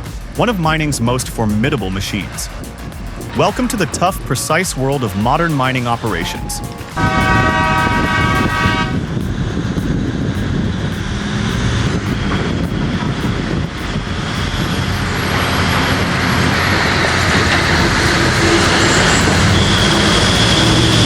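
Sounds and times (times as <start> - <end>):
horn blast: 0.0 - 9.4
heavy machine running: 0.0 - 21.0.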